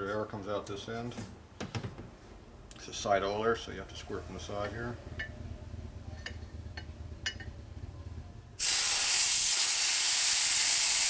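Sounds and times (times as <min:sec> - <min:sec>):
air blow gun hissing: 0:08.6 - 0:11.0.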